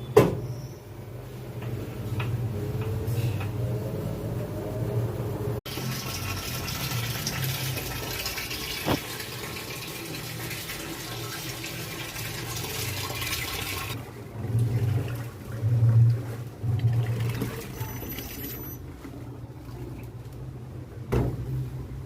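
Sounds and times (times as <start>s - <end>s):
water rushing into washing machine: 5.7s - 18.8s.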